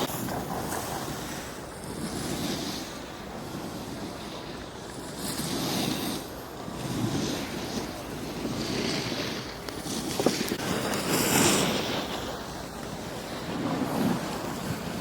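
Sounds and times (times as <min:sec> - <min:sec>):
ski edges scraping snow: 0:00.0 - 0:15.0
wind on microphone: 0:00.0 - 0:15.0.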